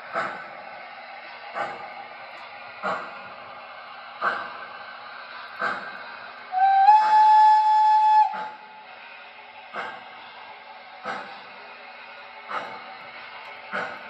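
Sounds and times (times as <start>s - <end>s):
model steam locomotive chuffs: 0.0s - 14.0s
train whistle blast: 6.5s - 8.8s.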